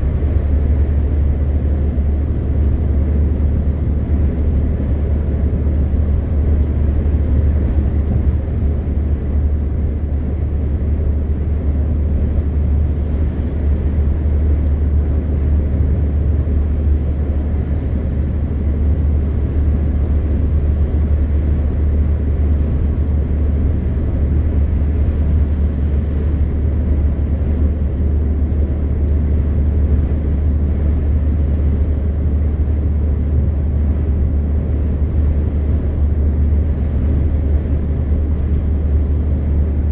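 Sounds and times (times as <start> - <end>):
truck diesel engine droning: 0.0 - 11.1
road and tyre rumble: 0.0 - 39.9.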